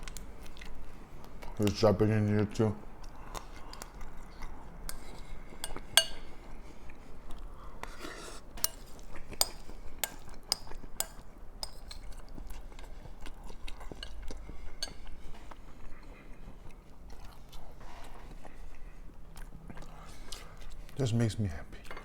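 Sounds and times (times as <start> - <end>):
crunchy chewing: 2.9 - 21.0
spoon scraping against bowl: 4.9 - 6.4, 7.8 - 12.9, 14.0 - 15.4.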